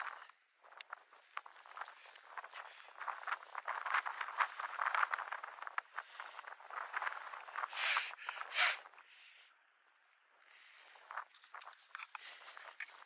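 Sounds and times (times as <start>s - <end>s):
loud short breaths: 7.6s - 9.3s.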